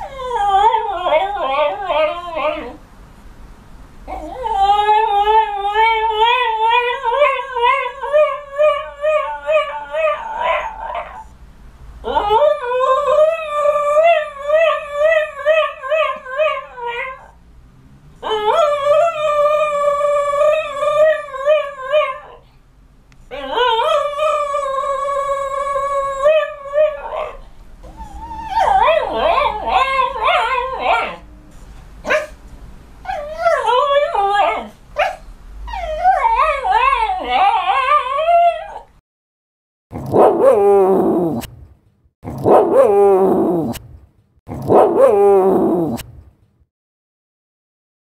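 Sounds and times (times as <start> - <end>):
dog howling: 0.0 - 2.8, 4.1 - 11.2, 23.3 - 31.2, 33.1 - 35.1, 35.7 - 38.9, 40.1 - 41.5, 42.4 - 43.8, 44.7 - 46.0.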